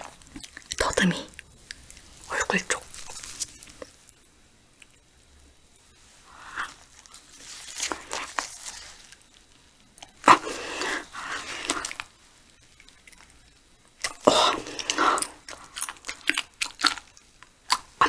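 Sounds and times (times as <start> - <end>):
biting and chewing: 6.5 - 9.3, 10.0 - 18.0.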